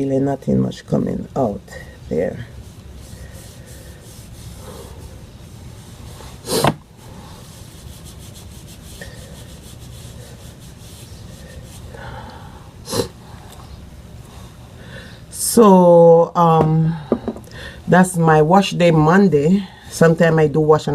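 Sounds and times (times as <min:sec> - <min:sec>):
comb through damp hair: 0:07.4 - 0:12.0.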